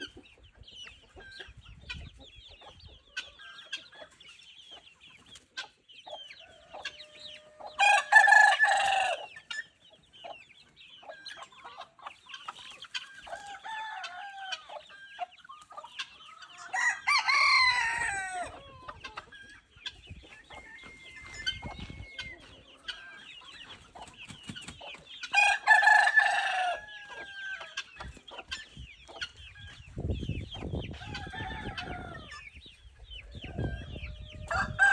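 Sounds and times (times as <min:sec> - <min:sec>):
poultry clucking and chirping: 0:00.0 - 0:34.9
roosters crowing: 0:06.4 - 0:09.5, 0:13.2 - 0:15.2, 0:16.4 - 0:19.3, 0:20.4 - 0:23.8, 0:25.2 - 0:28.1, 0:30.9 - 0:32.5, 0:33.3 - 0:34.9.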